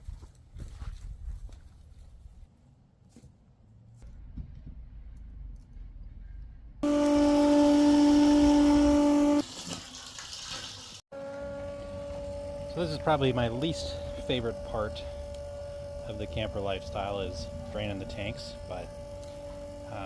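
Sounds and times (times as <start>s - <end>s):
pump motor whine: 6.8s - 10.1s, 11.1s - 20.0s.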